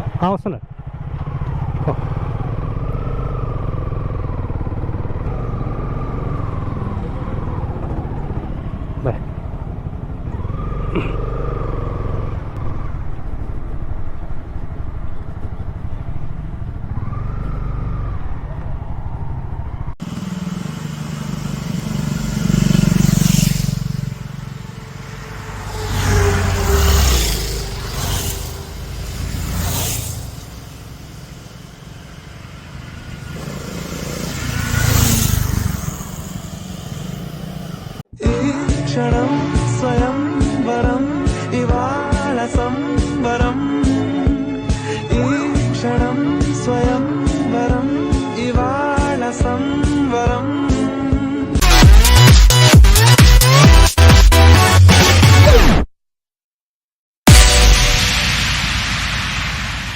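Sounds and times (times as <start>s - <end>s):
motorcycle engine running: 0.0s - 38.1s
high whine: 20.0s - 38.0s, 57.3s - 59.9s.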